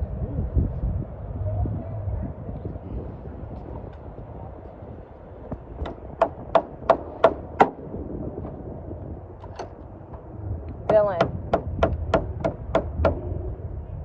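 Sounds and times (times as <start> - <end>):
sharp ringing knocks: 5.8 - 7.8, 10.9 - 13.3.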